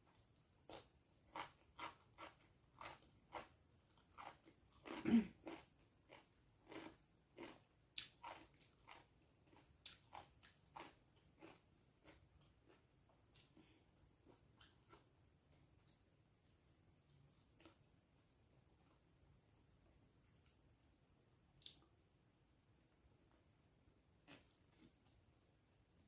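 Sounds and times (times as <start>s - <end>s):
person chewing food: 0.1s - 19.0s, 24.2s - 25.8s.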